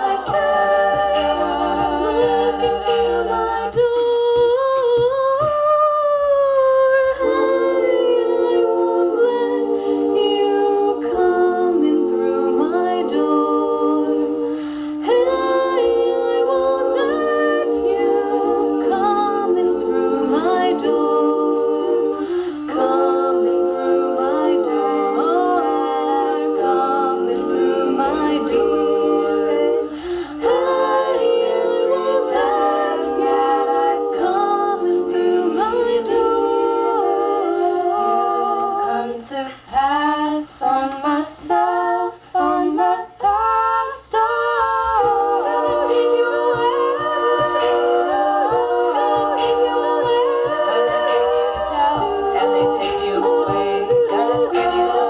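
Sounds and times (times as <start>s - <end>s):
female voices singing in harmony: 0.0s - 55.0s
percussive vocal clicks: 0.0s - 55.0s.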